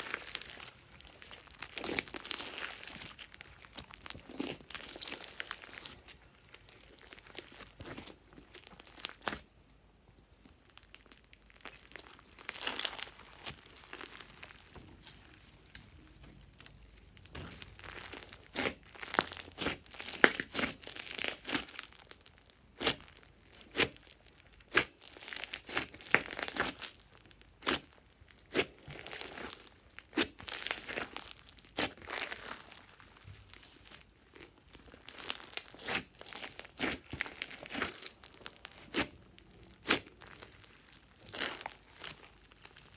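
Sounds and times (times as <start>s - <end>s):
slime crackling and clicking: 10.6s - 27.0s, 34.9s - 39.2s.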